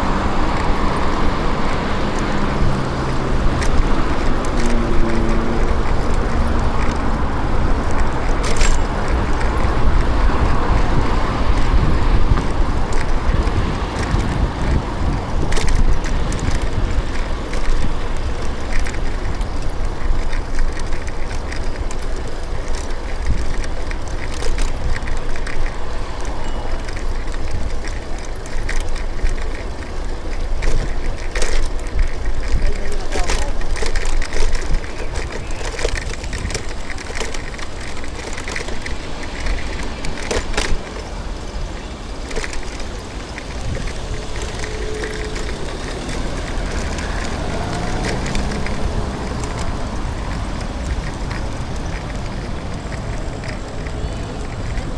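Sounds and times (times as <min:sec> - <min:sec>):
background traffic: 0:00.0 - 0:54.9
bicycle tyres rumbling: 0:00.0 - 0:54.9
sharp clicks and rattles: 0:00.0 - 0:54.9.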